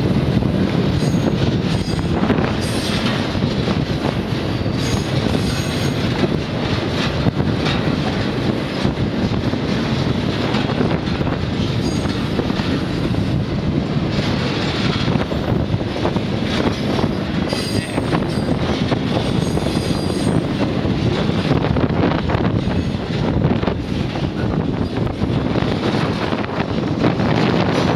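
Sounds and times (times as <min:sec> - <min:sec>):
train wheels rumbling on rails: 0:00.0 - 0:27.9.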